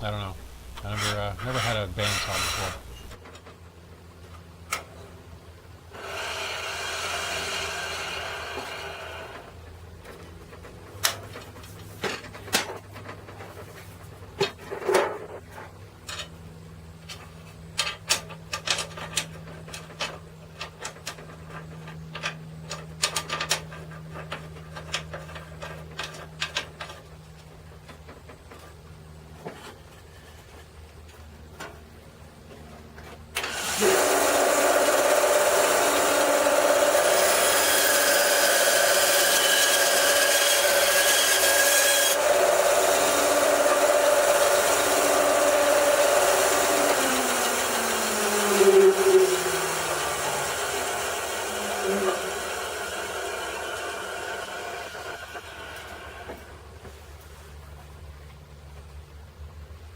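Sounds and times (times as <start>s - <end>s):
band saw cutting wood: 0.0s - 3.2s, 5.9s - 9.6s, 33.4s - 56.4s.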